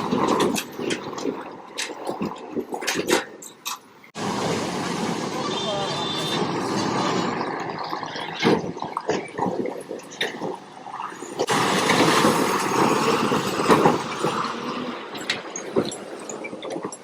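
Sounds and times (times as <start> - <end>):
water and mud splashing: 0.0 - 17.0
rushing splash: 4.2 - 16.8.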